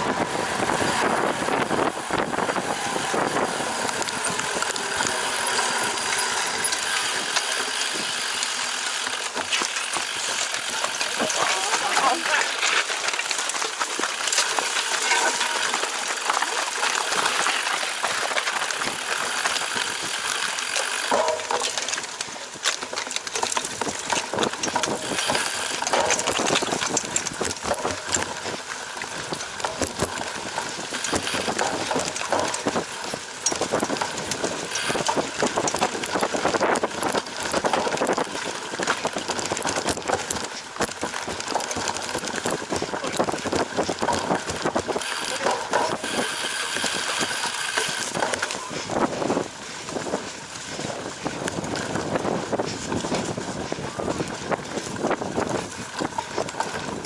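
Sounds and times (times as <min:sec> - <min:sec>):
wind on microphone: 0:00.0 - 0:06.7, 0:23.5 - 0:57.0
bike rattling and knocking: 0:00.0 - 0:57.0
tyres rushing over ground: 0:00.0 - 0:57.0.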